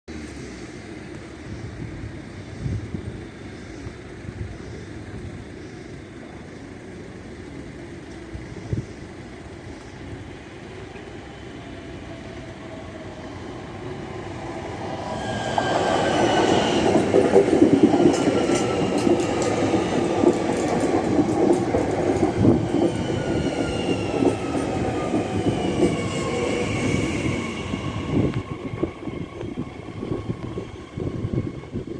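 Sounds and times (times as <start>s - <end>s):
train whine: 0.1s - 31.9s
train wheels clattering on rails: 14.7s - 30.6s.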